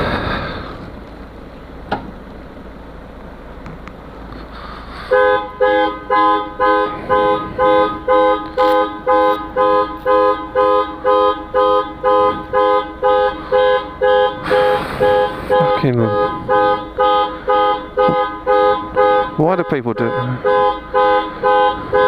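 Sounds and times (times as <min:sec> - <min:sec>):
car alarm horn honks: 0:05.1 - 0:22.0.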